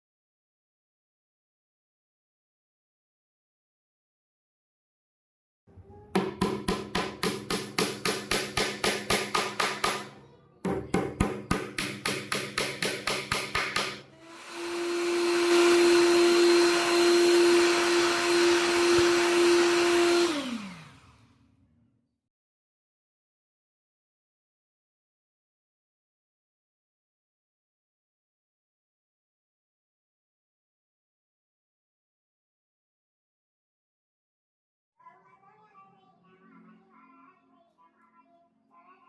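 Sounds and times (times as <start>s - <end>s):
power tool knocking on wood: 6.2s - 10.1s, 10.7s - 20.9s
motor winding down: 14.2s - 21.4s
power tool motor hum: 14.2s - 21.4s.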